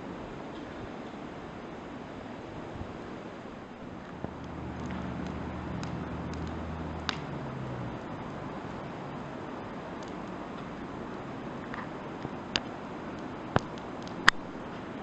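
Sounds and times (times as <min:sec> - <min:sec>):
low engine hum: 0:02.8 - 0:15.0
wood fire crackling and popping: 0:03.8 - 0:15.0.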